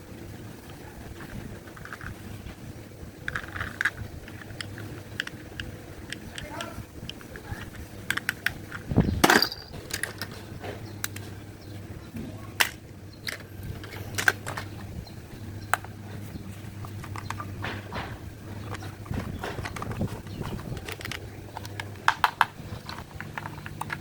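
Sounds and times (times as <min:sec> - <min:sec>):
faint steady hum: 0:00.0 - 0:24.0
clatter of objects: 0:01.1 - 0:02.6, 0:03.2 - 0:11.4, 0:12.6 - 0:14.9, 0:15.7 - 0:24.0
hard objects clicking and knocking: 0:03.2 - 0:11.4, 0:12.6 - 0:14.9, 0:16.8 - 0:24.0.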